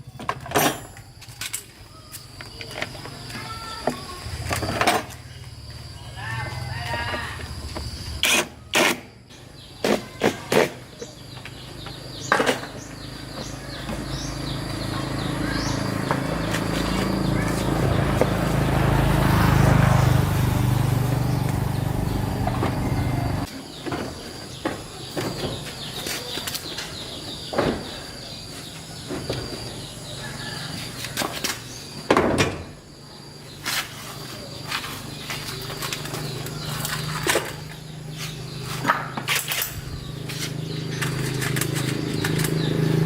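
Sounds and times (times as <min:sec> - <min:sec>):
motor running: 0:14.1 - 0:23.5.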